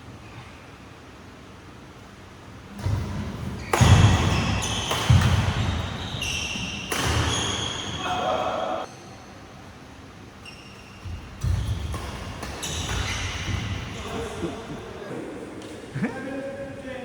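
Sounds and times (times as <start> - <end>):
racket hitting shuttlecock: 2.7 - 8.3, 11.0 - 14.8
shoes squeaking on court floor: 2.8 - 9.5, 10.2 - 15.8.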